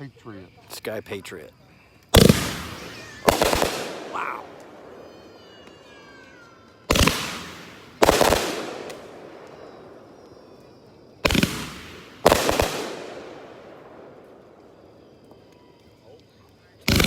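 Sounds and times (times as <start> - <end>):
firework shell bursts with echo: 2.2 - 15.5.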